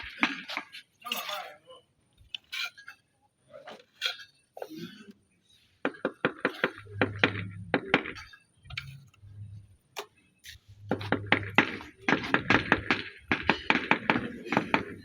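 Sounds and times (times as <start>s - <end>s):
rapid sharp knocks: 10.8s - 15.0s.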